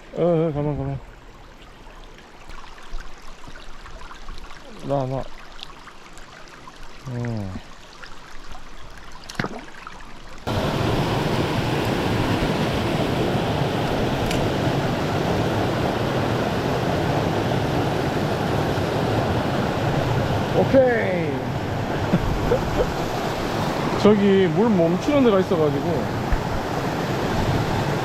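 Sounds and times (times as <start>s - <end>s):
stream water rushing: 0.0s - 28.0s
vocal murmur: 7.1s - 7.6s.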